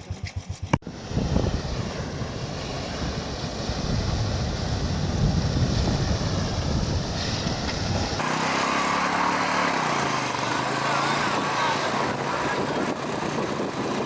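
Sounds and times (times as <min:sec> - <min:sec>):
wind buffeting microphone: 0:00.8 - 0:08.2, 0:10.3 - 0:14.0.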